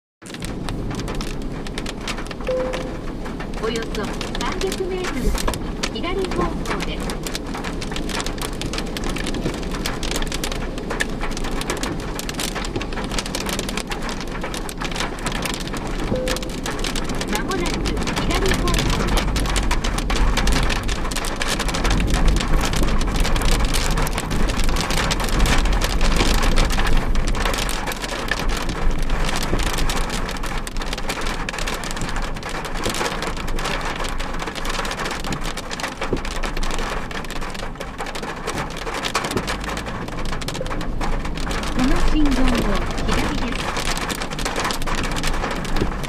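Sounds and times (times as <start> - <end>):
heavy rain drumming on car: 0.2 - 46.0
low rumble: 0.4 - 30.3.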